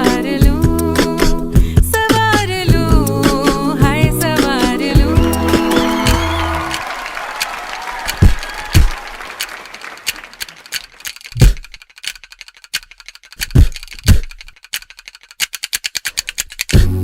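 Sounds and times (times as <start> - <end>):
sustained music with held bass: 0.0 - 6.7
sharp dry percussion clicks: 4.4 - 17.0.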